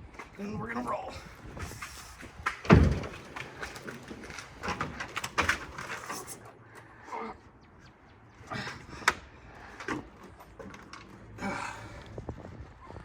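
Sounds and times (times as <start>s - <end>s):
knocks and clanks on steel deck: 2.4s - 6.3s.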